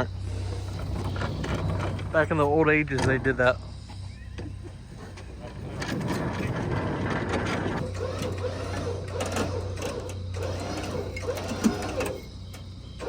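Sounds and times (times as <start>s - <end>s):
small motor whirring: 3.2s - 13.0s.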